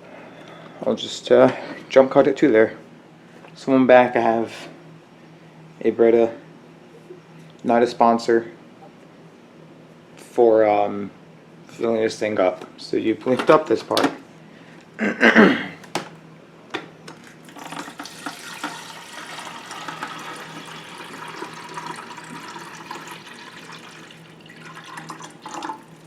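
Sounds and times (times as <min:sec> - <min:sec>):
water pouring into plastic reservoir: 0:17.5 - 0:26.0.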